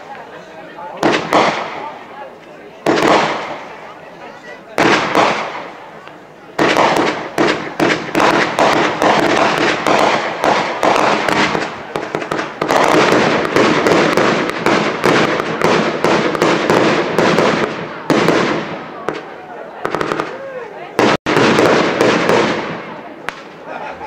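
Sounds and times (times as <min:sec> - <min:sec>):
fireworks barrage: 0:00.0 - 0:24.0.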